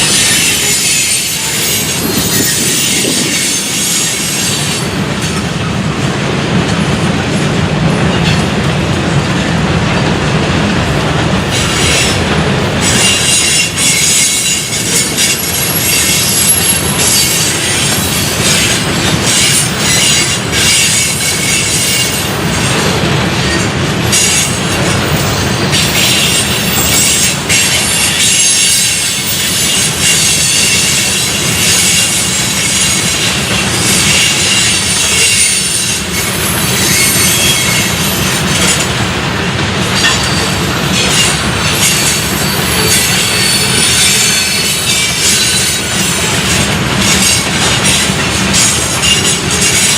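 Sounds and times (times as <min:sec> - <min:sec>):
high-pitched wheel squeal: 0:00.0 - 0:04.8, 0:12.8 - 0:18.7, 0:25.2 - 0:38.8, 0:40.0 - 0:46.4
train wheels rumbling on rails: 0:00.0 - 0:49.9.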